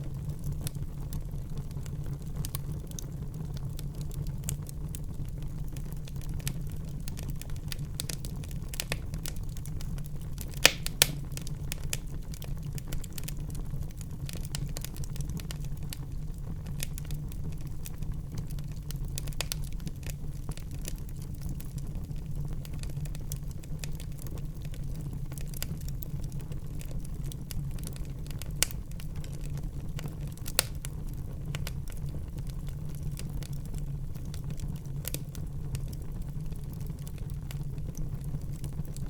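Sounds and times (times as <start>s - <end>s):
fire crackling: 0.0s - 39.0s
low rumble of flames: 0.0s - 39.0s
loud sharp fire pops: 10.5s - 12.1s.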